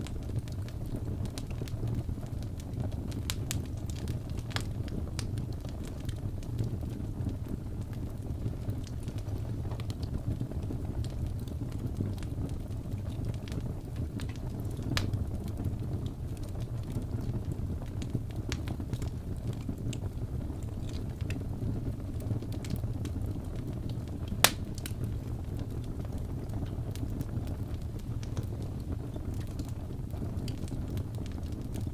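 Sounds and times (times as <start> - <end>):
wood fire crackling: 0.0 - 31.9
loud fire pop: 24.4 - 25.0.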